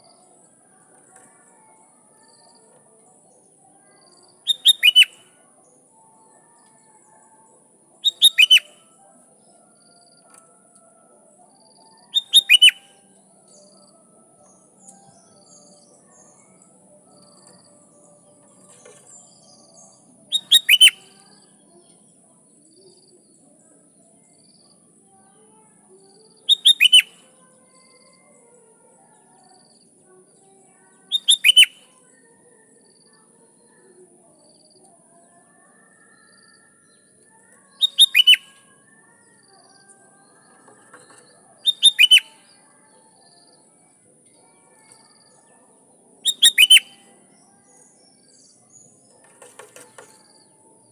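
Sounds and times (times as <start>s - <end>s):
faint bird chirps: 0.0s - 10.5s, 11.4s - 30.2s, 30.8s - 50.9s
bulbul whistled song phrases: 4.4s - 5.3s, 8.0s - 8.9s, 12.1s - 13.6s, 20.3s - 21.2s, 26.5s - 27.2s, 31.1s - 31.9s, 37.7s - 38.6s, 41.6s - 42.5s, 46.2s - 47.1s.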